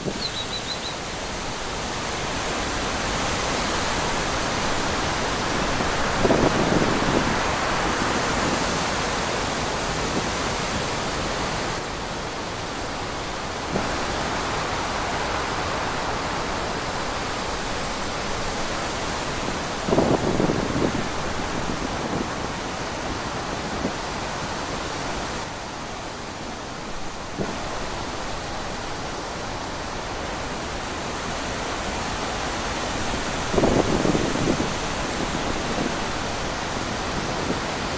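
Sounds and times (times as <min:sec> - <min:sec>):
wind blowing: 0:00.0 - 0:37.9.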